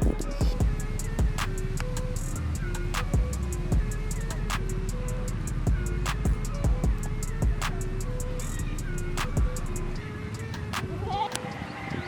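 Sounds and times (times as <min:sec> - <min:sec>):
kick drum: 0:00.0 - 0:01.4, 0:05.7 - 0:07.6
hi-hat ticks: 0:00.0 - 0:10.7.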